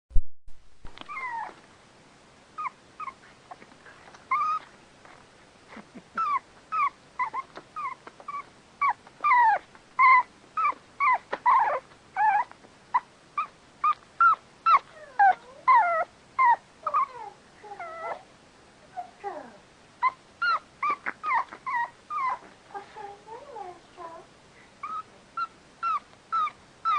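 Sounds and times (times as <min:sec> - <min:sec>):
puppy whimpering: 0:01.0 - 0:01.6, 0:02.6 - 0:04.8, 0:05.7 - 0:26.9.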